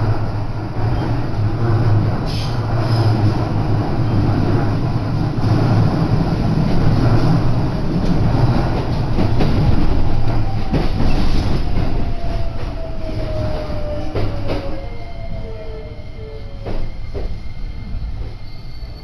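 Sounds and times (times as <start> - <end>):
train wheels rumbling on rail: 0.0 - 19.0
train clicks: 6.7 - 12.8.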